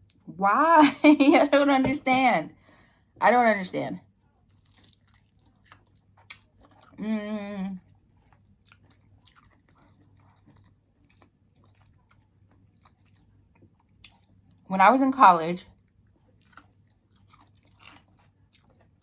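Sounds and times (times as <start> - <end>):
chewing with wet mouth clicks: 4.5 - 7.0, 7.9 - 14.7, 15.7 - 19.0.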